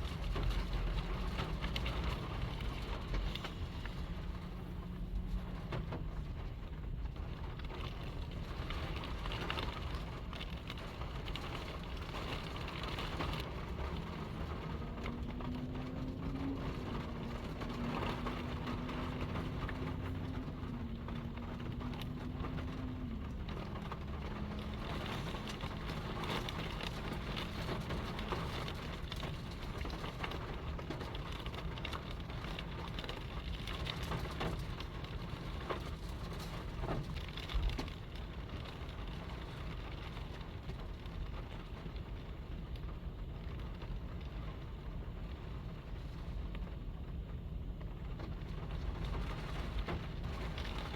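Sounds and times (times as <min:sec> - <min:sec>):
low steady hum: 0:00.0 - 0:32.9
rain-like patter: 0:00.0 - 0:50.9.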